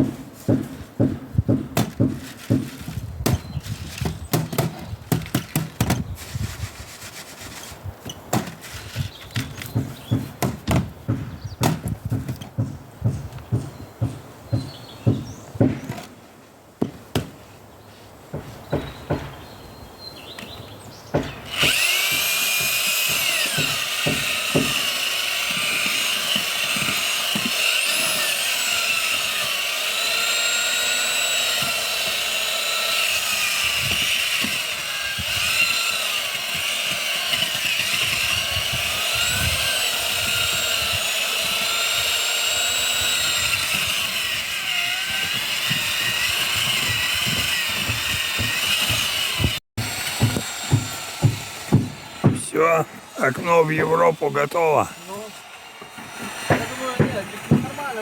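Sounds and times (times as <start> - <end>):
sharp knocks: 0.0 - 3.4, 9.4 - 16.0, 18.4 - 19.4, 21.1 - 28.4, 45.1 - 52.5, 55.8 - 57.8.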